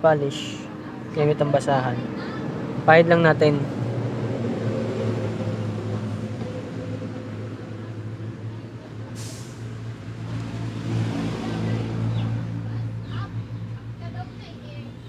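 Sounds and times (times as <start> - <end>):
low engine hum: 2.0 - 15.0.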